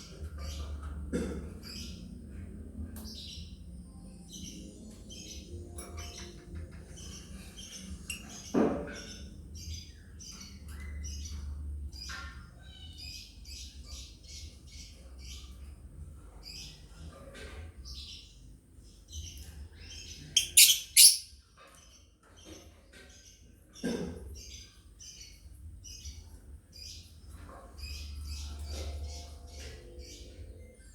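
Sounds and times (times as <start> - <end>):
lovebirds chirping: 19.9 - 21.4
loud shrill bird calls: 20.4 - 21.3.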